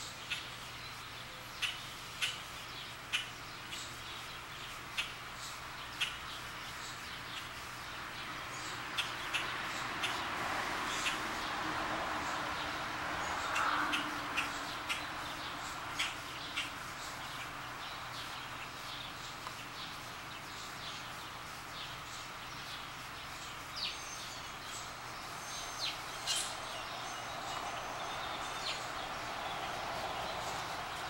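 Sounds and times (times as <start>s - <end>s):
outdoor background hiss: 0.0s - 31.0s
high bird chirps: 23.5s - 31.0s.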